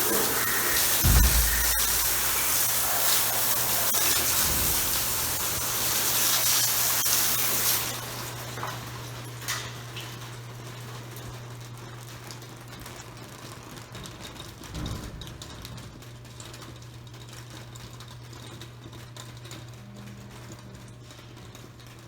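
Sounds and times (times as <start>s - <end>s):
rain pattering on a roof: 0.0s - 22.0s
low thud: 1.0s - 2.7s.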